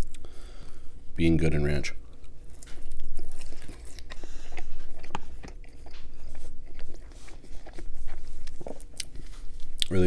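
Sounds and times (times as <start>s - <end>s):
person chewing pizza: 0.0s - 0.9s, 2.0s - 10.0s
crackles and clicks of crust: 2.0s - 10.0s.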